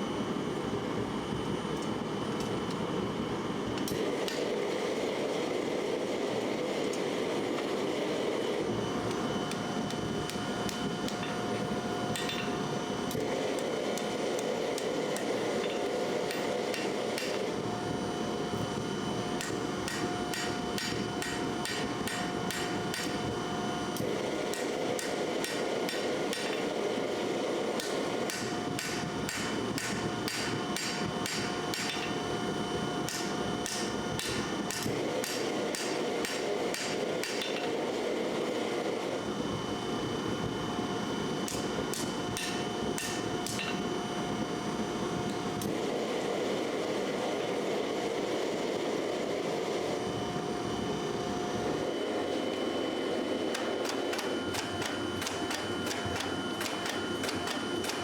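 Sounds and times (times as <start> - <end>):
hammer striking steel: 10.3 - 12.6, 15.2 - 17.4, 19.4 - 23.2, 24.5 - 26.7, 27.8 - 32.2, 33.1 - 37.7, 41.5 - 43.8, 53.5 - 58.0.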